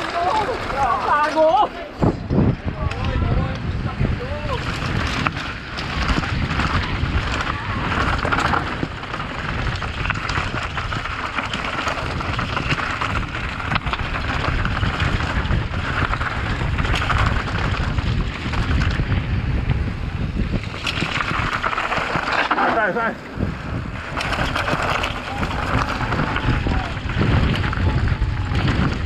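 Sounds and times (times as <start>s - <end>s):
bike tyres rattling on rock: 0.0s - 29.0s
wind buffeting microphone: 0.0s - 29.0s.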